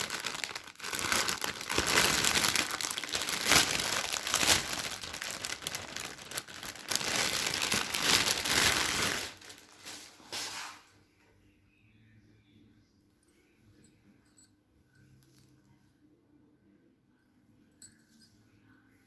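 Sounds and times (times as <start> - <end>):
wrapping crumpling and crackling: 0.0 - 10.7.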